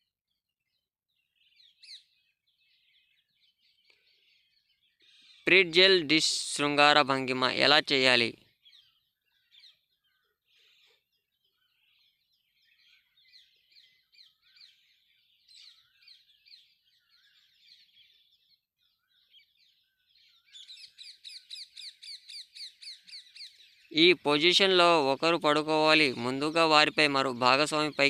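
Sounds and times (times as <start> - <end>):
small birds chirping and twittering: 0.0 - 28.0.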